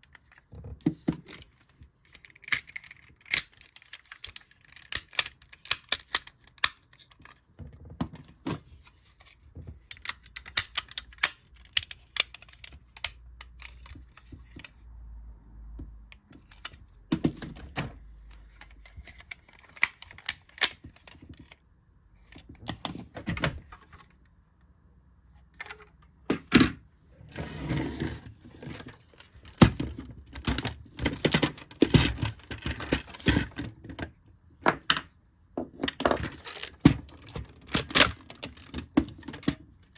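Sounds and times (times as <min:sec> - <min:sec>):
plastic toy parts clicking: 0:00.0 - 0:14.8, 0:16.2 - 0:21.6, 0:35.8 - 0:39.9.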